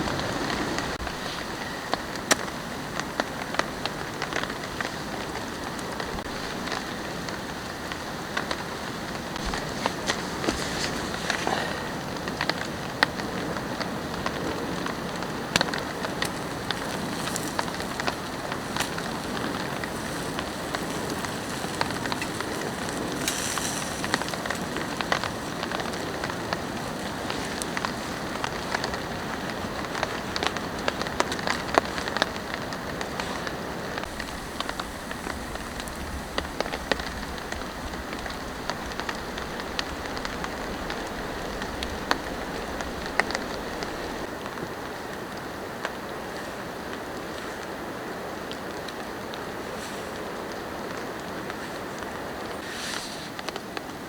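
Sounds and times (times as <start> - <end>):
raindrops tapping: 0.0 - 33.2, 33.9 - 44.6
steady rain falling: 0.0 - 54.0.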